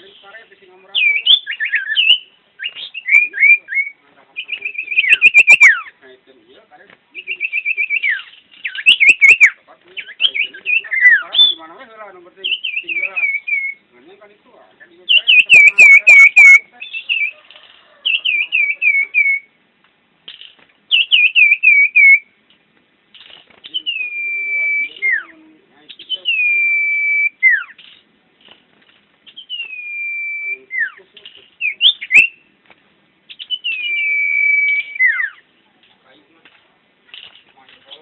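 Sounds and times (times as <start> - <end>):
bird singing clear whistles: 0.9 - 6.0, 7.1 - 11.6, 12.4 - 13.9, 15.1 - 19.6, 20.9 - 22.4, 23.6 - 28.0, 29.2 - 32.5, 33.3 - 35.5.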